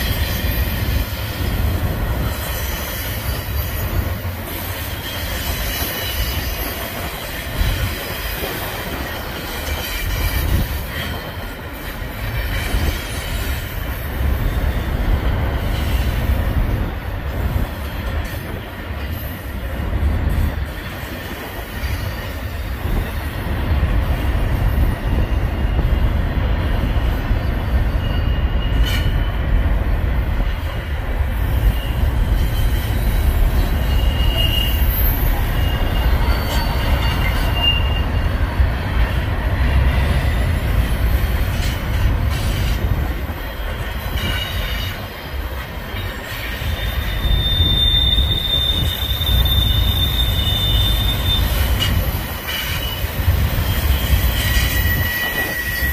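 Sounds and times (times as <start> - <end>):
train wheels rumbling on rail: 0.0 - 55.9
high-pitched wheel squeals: 27.4 - 29.4, 31.6 - 38.4, 45.9 - 55.9.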